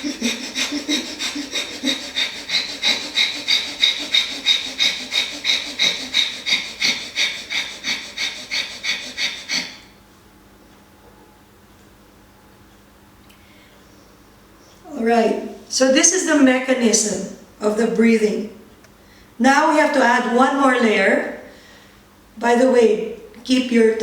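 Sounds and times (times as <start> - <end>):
rapid forceful rasping exhalations: 0.0 - 9.9.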